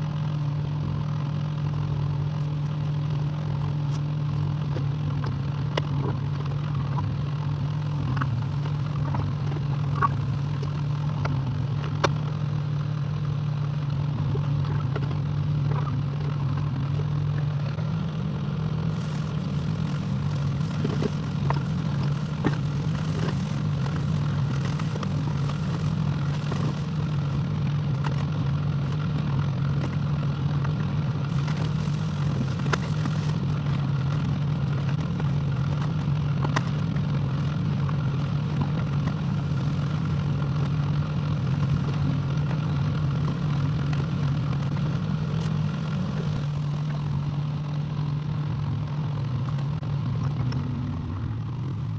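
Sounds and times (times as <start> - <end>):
excavator diesel engine running: 13.8 - 51.9.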